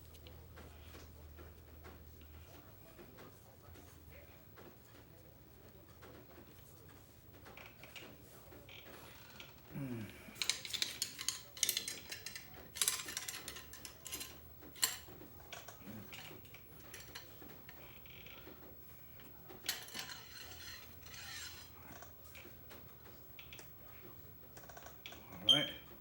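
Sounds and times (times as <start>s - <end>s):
cleaning rod scraping in gun barrel: 19.6s - 21.8s.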